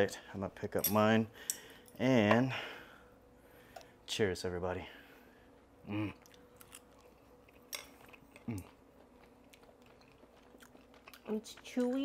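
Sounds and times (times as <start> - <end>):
person chewing: 5.9 - 12.0.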